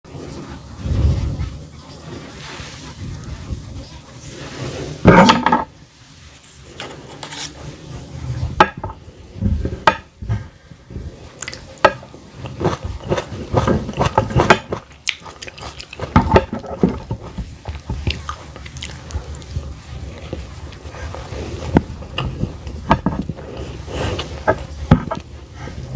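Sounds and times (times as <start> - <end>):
person biting and chewing food: 11.4 - 24.5
sharp clicks and crunches: 11.4 - 25.3.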